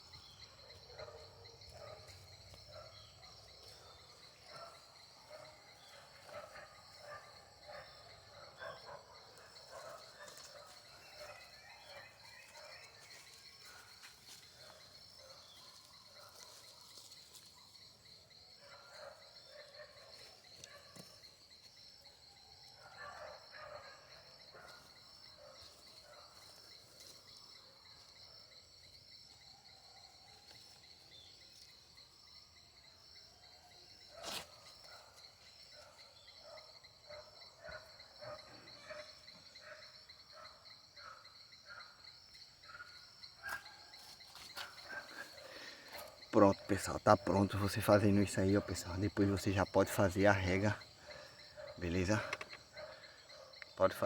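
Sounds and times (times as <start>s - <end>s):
insect trill: 0.0s - 54.0s.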